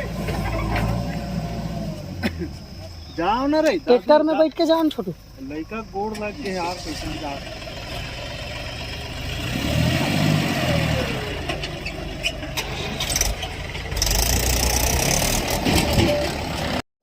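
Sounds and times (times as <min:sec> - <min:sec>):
heavy diesel engine running: 0:06.4 - 0:16.8.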